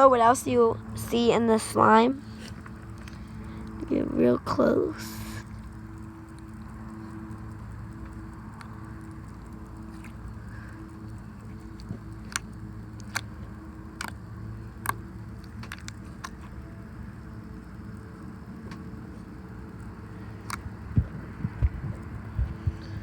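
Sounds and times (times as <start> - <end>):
steady low hum: 0.0 - 23.0
low thumps: 20.9 - 23.0.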